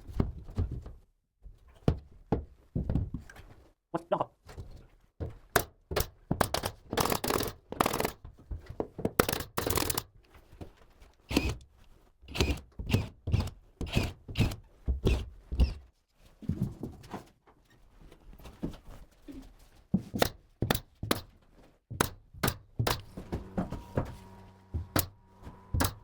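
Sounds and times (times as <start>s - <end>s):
carpentry knocks and thuds: 1.8s - 3.2s, 5.2s - 9.8s, 20.0s - 26.0s.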